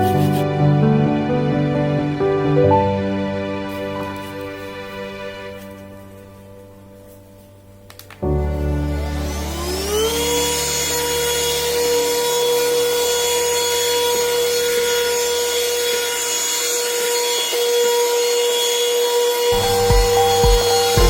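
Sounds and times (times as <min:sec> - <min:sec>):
vacuum cleaner motor whine: 0:08.5 - 0:21.0
rushing air hiss: 0:19.5 - 0:21.0.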